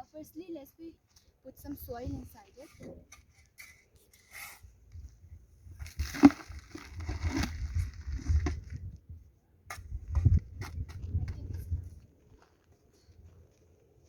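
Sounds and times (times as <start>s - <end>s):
soil scooped and poured: 5.7s - 9.0s.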